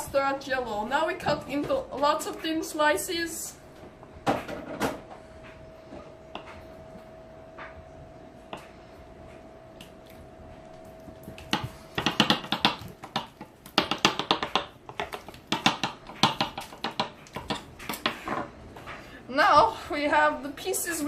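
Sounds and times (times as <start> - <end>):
faint steady hum: 0.0 - 21.0
knife chopping jello: 11.1 - 18.3.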